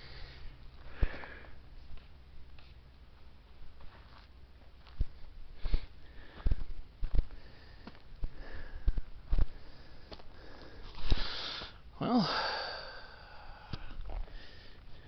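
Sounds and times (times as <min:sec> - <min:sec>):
man breathing and sniffing: 0:00.0 - 0:02.8, 0:05.0 - 0:15.0
footsteps on dirt trail: 0:00.8 - 0:11.7.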